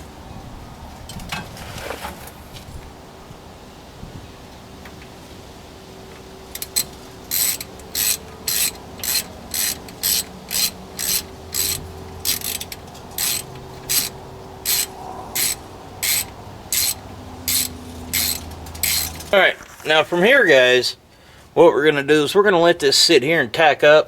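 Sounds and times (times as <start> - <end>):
ratchet wrench clicking: 6.5 - 19.4.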